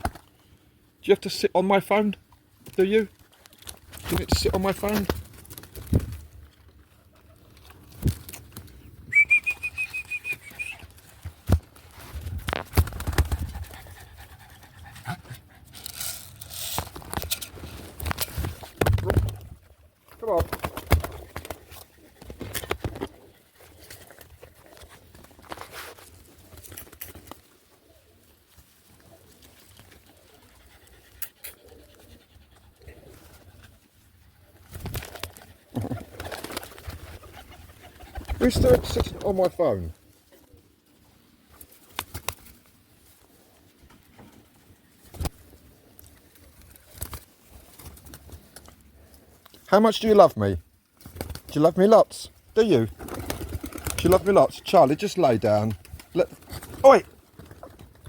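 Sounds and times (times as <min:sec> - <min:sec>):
dog panting: 0:13.4 - 0:15.9
pigeons cooing softly: 0:26.1 - 0:39.4.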